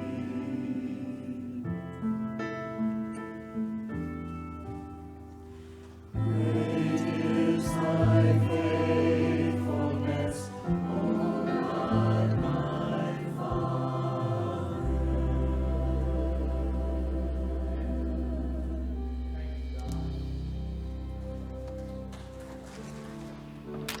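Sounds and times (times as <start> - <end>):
voices singing a hymn: 0.0 - 2.2, 6.1 - 19.5
keyboard accompaniment: 0.0 - 24.0.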